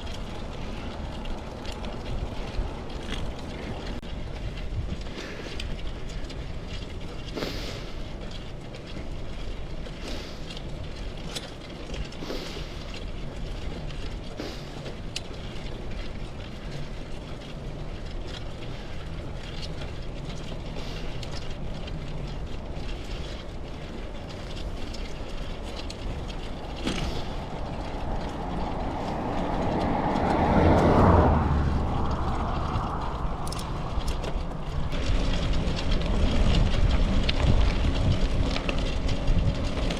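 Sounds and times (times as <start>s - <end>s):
bicycle tyres rumbling: 0.0s - 39.9s
vehicle passing: 25.0s - 39.9s.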